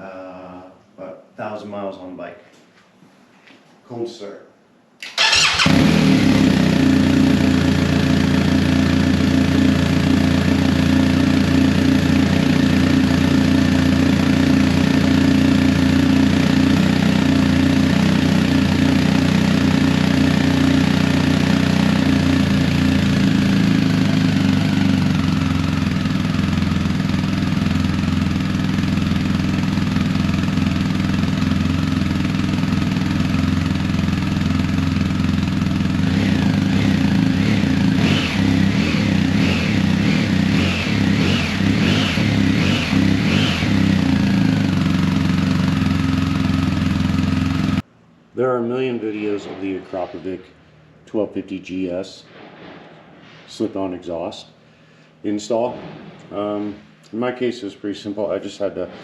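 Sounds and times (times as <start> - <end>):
motorcycle engine idling: 5.2 - 47.8.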